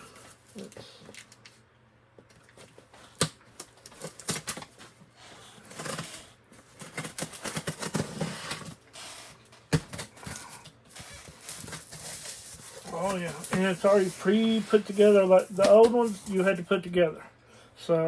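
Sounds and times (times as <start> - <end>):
packing tape being slit: 3.0 - 4.8
cardboard rustling: 5.6 - 8.8, 9.7 - 16.6.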